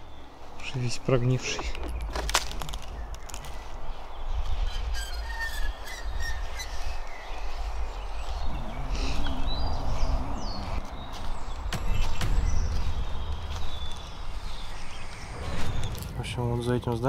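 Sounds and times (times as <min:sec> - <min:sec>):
small birds chirping: 0:00.0 - 0:17.0
steady low rumble: 0:07.3 - 0:17.0.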